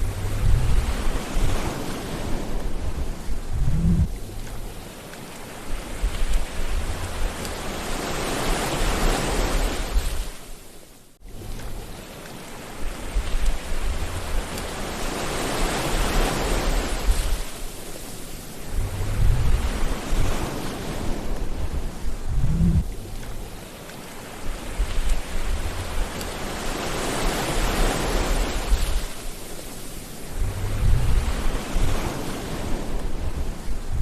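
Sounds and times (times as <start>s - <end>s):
sea waves washing in: 0.0s - 34.0s.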